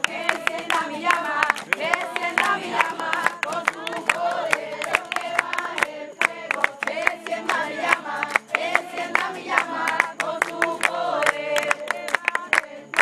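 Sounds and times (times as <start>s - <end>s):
group singing together: 0.0s - 13.0s
hand clapping: 0.0s - 13.0s.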